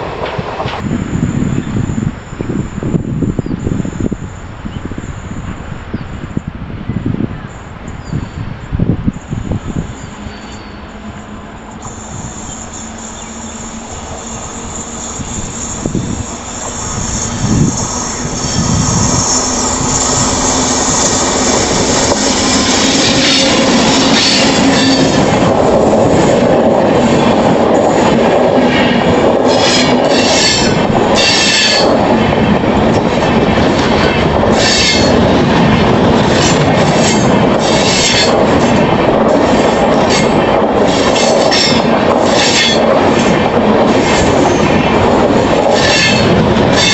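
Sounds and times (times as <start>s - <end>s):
train wheels squealing: 9.2s - 25.3s, 34.5s - 35.2s, 45.7s - 46.9s
train wheels clattering: 11.7s - 46.9s.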